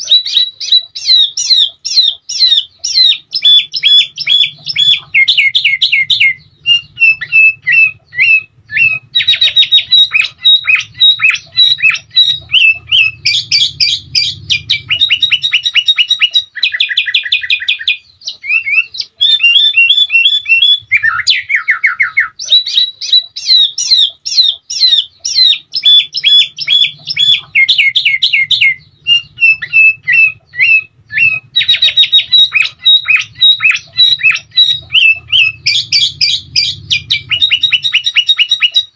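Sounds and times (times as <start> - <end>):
bulbul singing chirps and trills: 0.0 - 38.9
faint low hum: 0.0 - 38.9.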